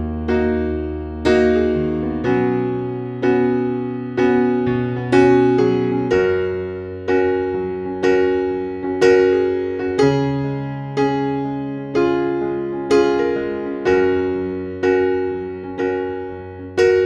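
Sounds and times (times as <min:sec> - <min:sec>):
piano playing slow chords: 0:00.0 - 0:17.0.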